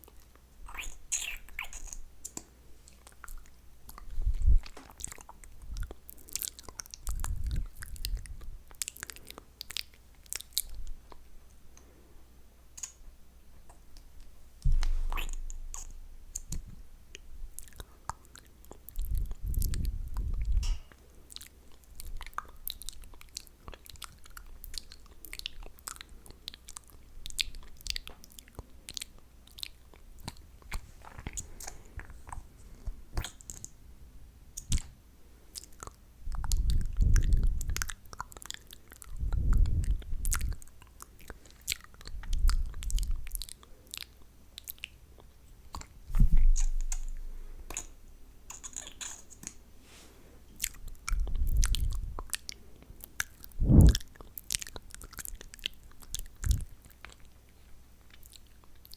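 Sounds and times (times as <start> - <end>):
wet mouth clicks and smacks: 0.0 - 11.9, 12.7 - 13.0, 13.7 - 32.4, 33.1 - 33.8, 34.6 - 49.6, 50.6 - 57.4
low thumps: 14.6 - 16.8, 46.1 - 47.4, 53.6 - 54.0.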